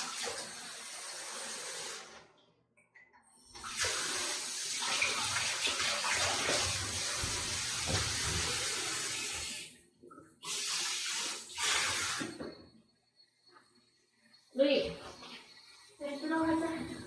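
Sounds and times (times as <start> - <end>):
tap water pouring into bath: 0.0 - 2.6, 3.5 - 12.6.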